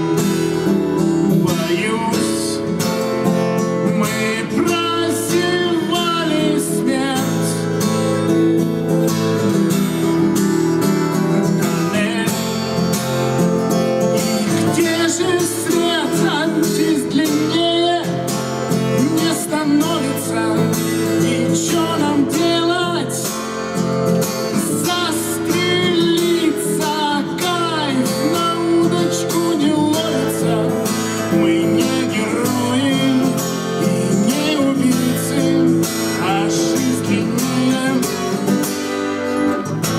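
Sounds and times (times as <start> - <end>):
acoustic guitar playing: 0.0 - 39.9
person singing: 3.8 - 7.8, 14.4 - 23.4, 24.4 - 38.7.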